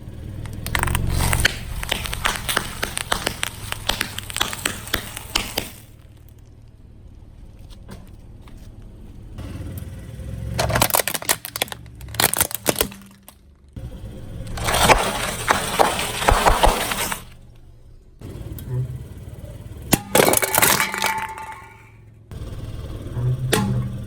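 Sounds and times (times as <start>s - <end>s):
car tyre crushing brittle objects: 0.1s - 9.4s, 10.5s - 13.8s, 14.4s - 17.8s, 19.9s - 21.9s.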